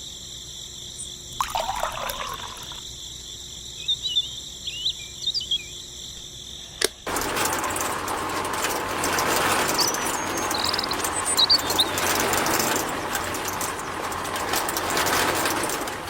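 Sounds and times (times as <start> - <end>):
high insect drone: 0.0 - 7.9
bird chirps: 3.7 - 6.8, 9.8 - 12.1.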